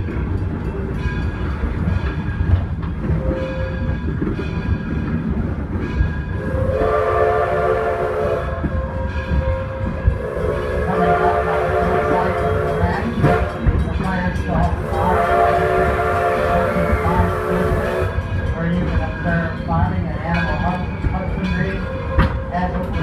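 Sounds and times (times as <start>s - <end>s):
train rumbling on track: 0.0s - 23.0s
steam locomotive whistle: 6.4s - 9.0s, 9.7s - 13.7s, 14.7s - 18.2s.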